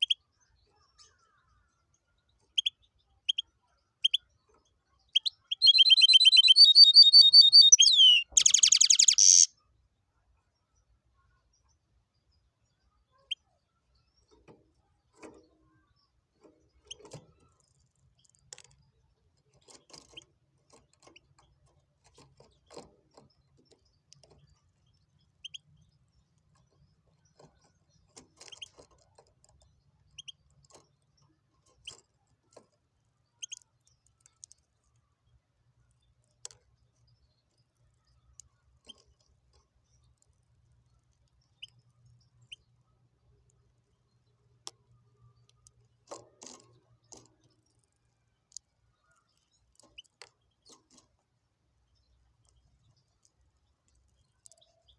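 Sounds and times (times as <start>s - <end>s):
bird high chirps: 5.1s - 9.5s.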